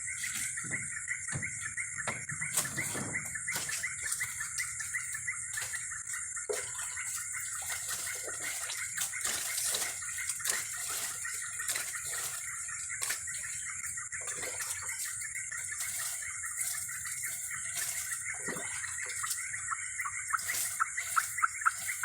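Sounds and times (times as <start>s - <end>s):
shrill insect hum: 0.0s - 22.0s
fast insect chirping: 14.9s - 22.0s.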